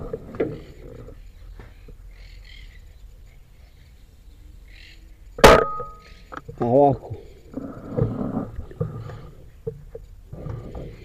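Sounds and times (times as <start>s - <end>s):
faint bird chirping: 0.0s - 11.0s.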